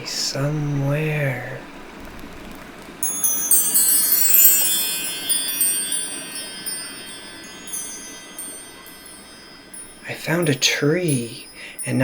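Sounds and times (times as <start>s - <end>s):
metal chimes ringing: 3.0s - 12.0s.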